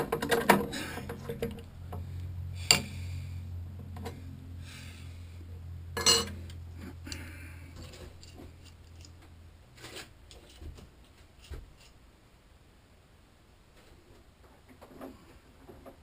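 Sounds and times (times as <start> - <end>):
metal tools clinking: 6.0 - 6.4.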